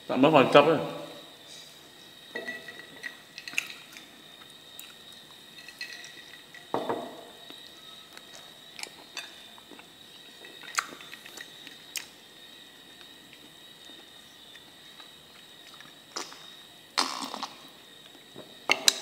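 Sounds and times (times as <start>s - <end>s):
faint high whine: 0.0s - 19.0s
person chewing crispy food: 8.2s - 12.2s.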